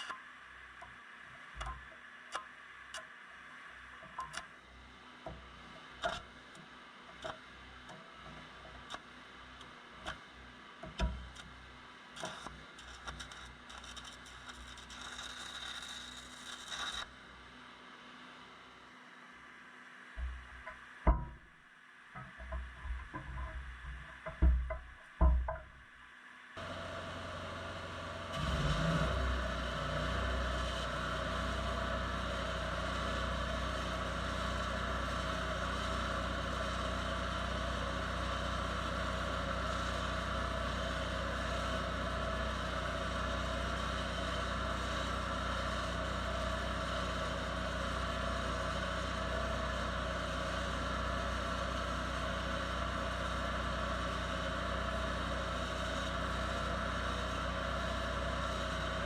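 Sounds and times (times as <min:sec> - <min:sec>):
engine running steadily: 0:26.6 - 0:59.0.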